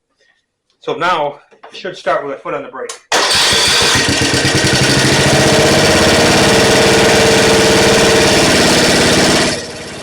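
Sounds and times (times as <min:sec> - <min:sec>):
riding mower engine running: 0:03.1 - 0:10.0.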